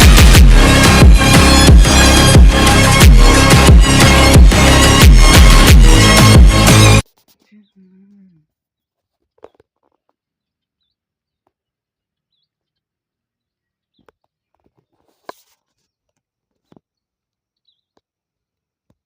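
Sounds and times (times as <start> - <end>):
small bird chirping: 7.4 - 18.2
brief rustle: 14.0 - 16.9.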